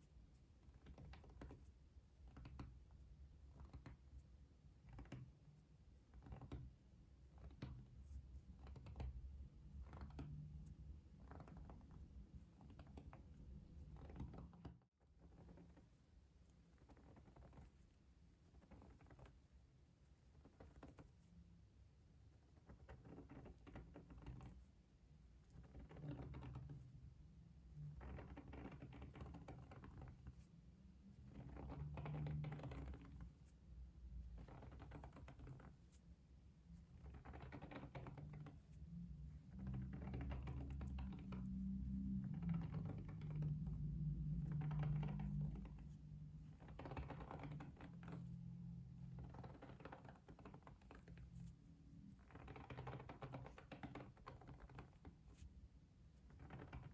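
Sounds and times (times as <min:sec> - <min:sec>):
faint low rumble: 0:25.4 - 0:52.6.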